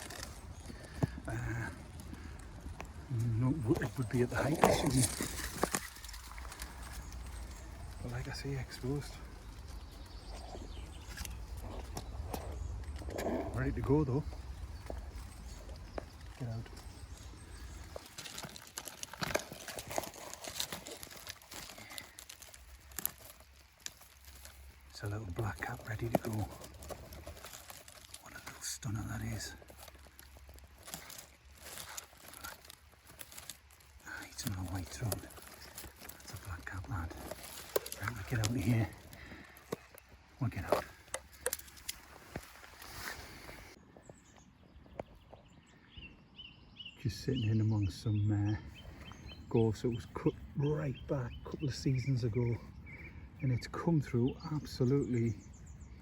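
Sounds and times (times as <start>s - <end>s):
twigs snapping: 0.0s - 43.8s
footsteps rustling through scrub: 0.0s - 44.2s
twigs and leaves crackling: 0.0s - 45.9s, 47.2s - 56.0s.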